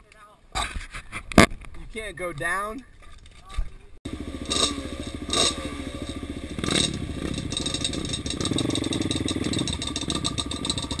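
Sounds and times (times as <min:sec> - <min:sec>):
atv engine revving: 0:04.1 - 0:11.0
machine rattling: 0:04.4 - 0:11.0.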